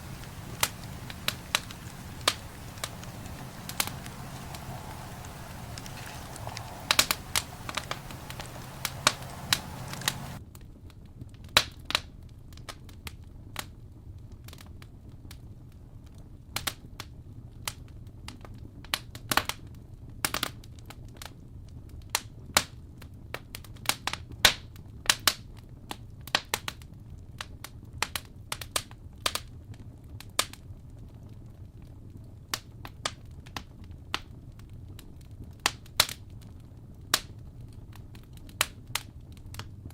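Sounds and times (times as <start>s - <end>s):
campfire crackling: 0.0s - 10.4s
soft hiss: 0.0s - 10.4s.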